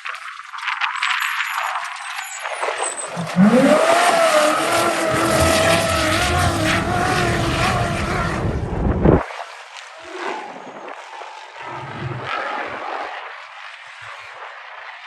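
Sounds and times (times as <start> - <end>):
race vehicle engine revving: 2.8 - 9.2.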